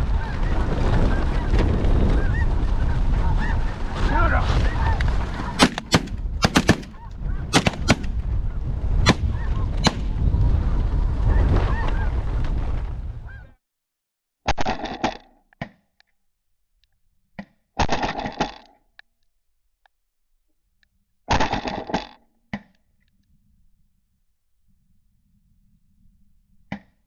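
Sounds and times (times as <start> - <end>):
wind on microphone: 0.0 - 13.6
geese honking: 1.1 - 8.1
shotgun shots: 5.5 - 8.2, 9.0 - 10.2.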